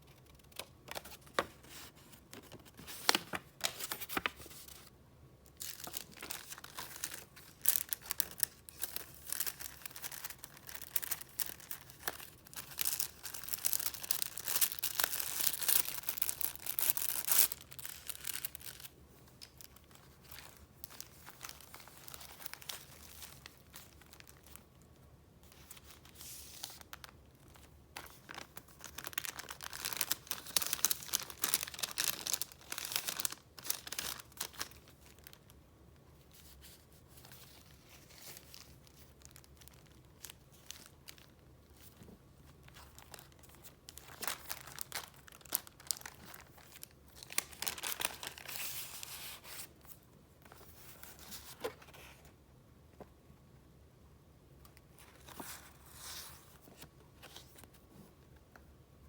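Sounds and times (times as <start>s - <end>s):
paper rustling and crinkling: 0.2s - 4.9s, 5.6s - 24.7s, 25.4s - 35.5s, 36.2s - 52.3s, 55.0s - 58.2s.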